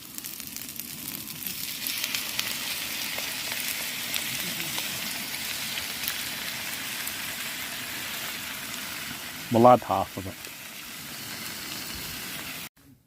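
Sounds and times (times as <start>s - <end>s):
food sizzling in a pan: 0.0s - 12.7s.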